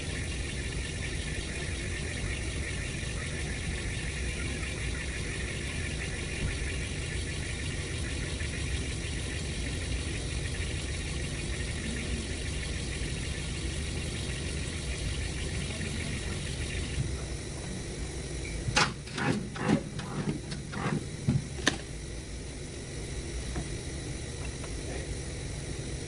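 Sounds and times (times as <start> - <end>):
sharp clicks and knocks: 18.7 - 21.9.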